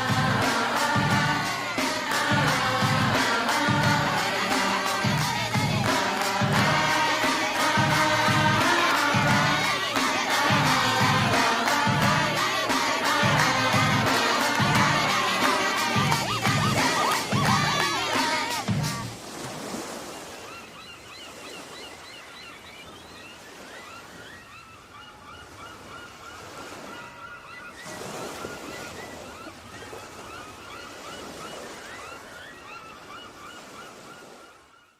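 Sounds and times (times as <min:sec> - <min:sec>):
song music: 0:00.0 - 0:19.1
wind and sea surf: 0:00.0 - 0:34.7.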